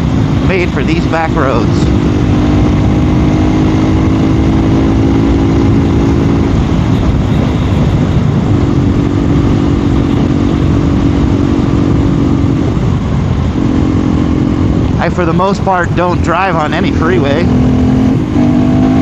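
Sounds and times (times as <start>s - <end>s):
heavy wind noise: 0.0s - 19.0s
motorcycle engine running: 0.0s - 19.0s.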